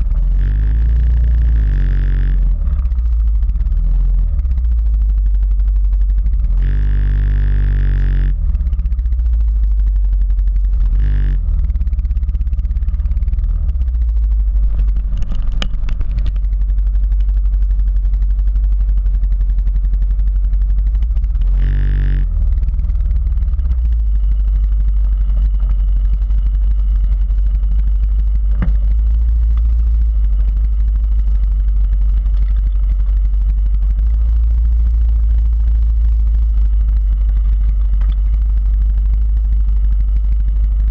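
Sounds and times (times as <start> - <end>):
heavy low rumble: 0.0 - 40.9
quad bike engine running: 0.0 - 40.9
scattered clatter: 0.0 - 40.9.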